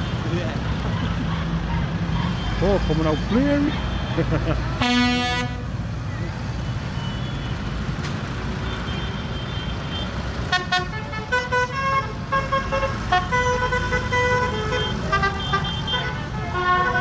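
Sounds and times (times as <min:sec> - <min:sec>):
tractor engines rumbling: 0:00.0 - 0:17.0
musical horn playing a tune: 0:04.8 - 0:05.7.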